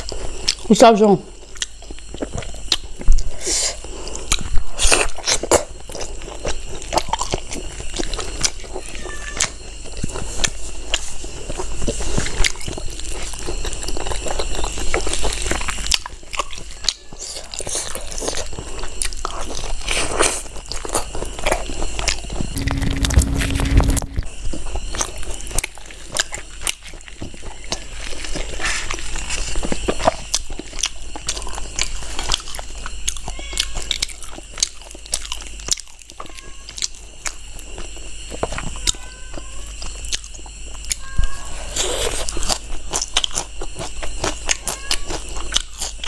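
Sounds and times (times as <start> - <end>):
close chewing and mouth smacks: 0.0 - 0.7, 1.4 - 22.6, 25.0 - 39.0, 39.8 - 41.0, 41.7 - 46.0
rushing noise with low hum: 22.4 - 24.3.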